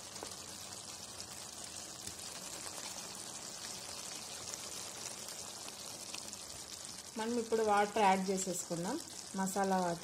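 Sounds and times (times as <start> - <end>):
curry sizzling in oil: 0.0 - 10.0.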